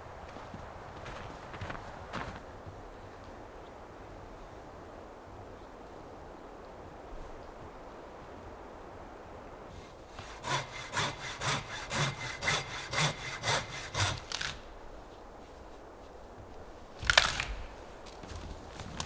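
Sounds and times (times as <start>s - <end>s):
hand saw cutting wood: 9.7s - 14.9s.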